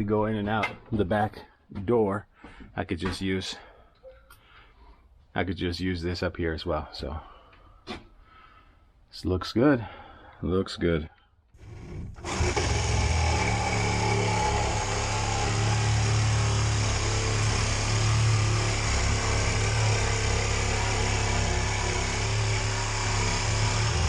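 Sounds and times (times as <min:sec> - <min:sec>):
power tool running: 0:11.6 - 0:24.0.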